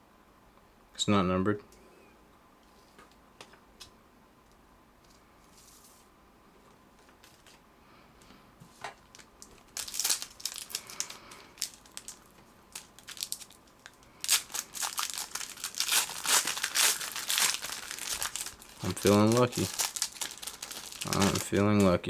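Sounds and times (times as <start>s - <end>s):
wrapper crinkling and tearing: 9.0s - 22.0s.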